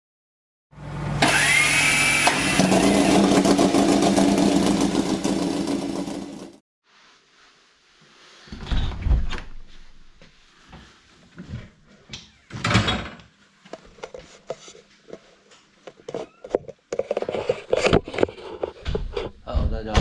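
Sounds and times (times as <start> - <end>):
objects knocking and thumping: 15.9 - 20.0.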